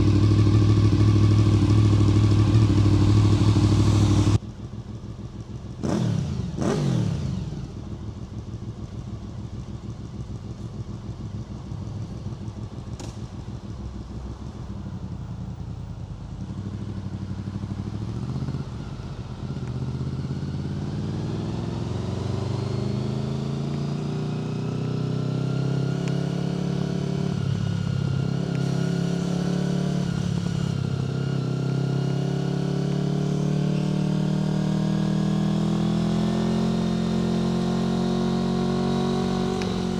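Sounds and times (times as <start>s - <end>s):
motorcycle engine revving: 0.0s - 5.1s, 5.8s - 9.1s, 12.4s - 39.9s
motorcycle engine idling: 0.0s - 23.6s
motorcycle accelerating through gears: 0.0s - 39.9s.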